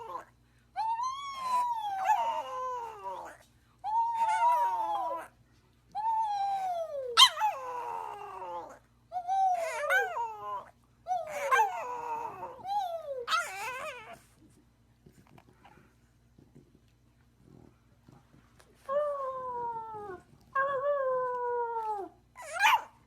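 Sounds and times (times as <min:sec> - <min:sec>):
dog howling: 0:00.0 - 0:05.3, 0:06.1 - 0:14.2.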